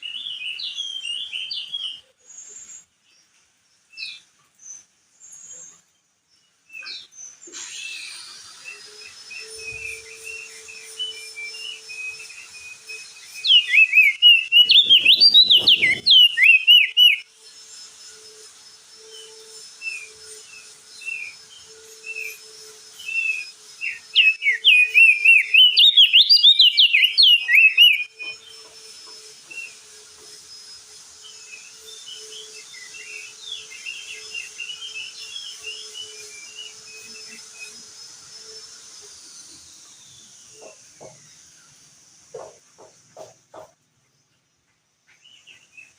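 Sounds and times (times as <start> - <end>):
soft bird chirps: 0.0 - 45.9
steady high hiss: 0.0 - 45.9
bird twittering warble: 12.8 - 17.2.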